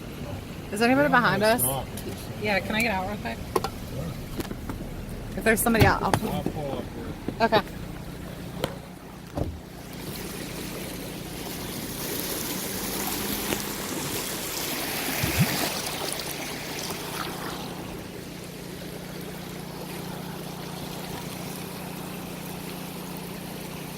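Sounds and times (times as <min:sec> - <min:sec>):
low hum: 0:00.0 - 0:14.6
floodwater rushing: 0:00.0 - 0:23.9
thump: 0:09.3 - 0:09.6.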